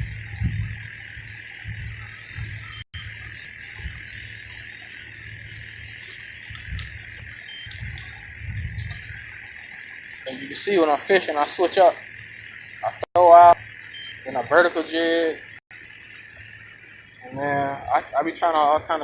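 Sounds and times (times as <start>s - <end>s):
wind rumble on microphone: 0.0s - 10.0s
insects buzzing: 0.0s - 19.0s.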